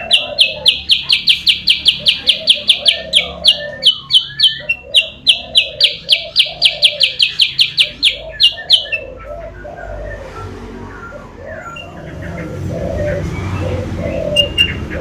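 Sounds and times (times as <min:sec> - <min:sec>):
bird high call notes: 0:00.0 - 0:10.0.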